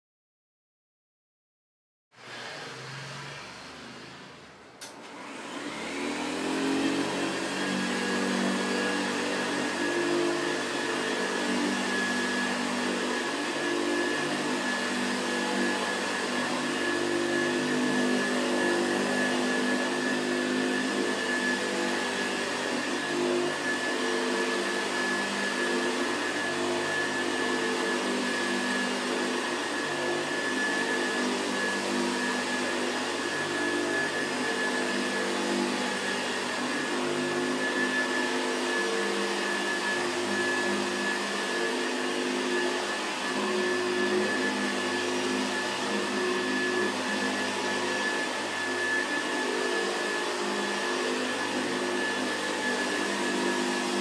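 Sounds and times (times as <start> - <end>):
vacuum cleaner running: 2.2 - 54.0.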